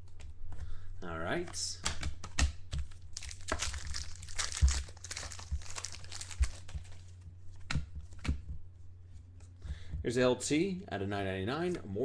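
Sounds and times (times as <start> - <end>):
foil wrapper tearing and crinkling: 3.1 - 7.0.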